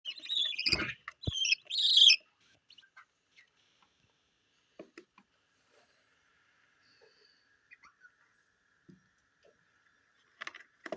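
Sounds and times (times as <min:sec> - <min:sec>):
budgerigar harsh chirps: 0:00.1 - 0:02.2
faint bird clicks and peeps: 0:00.1 - 0:03.5.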